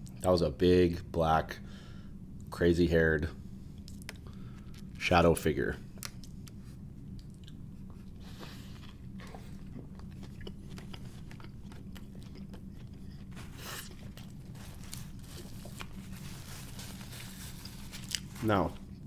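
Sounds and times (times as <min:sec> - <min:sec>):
low steady hum: 0:00.0 - 0:19.0
person chewing a burger: 0:06.0 - 0:19.0.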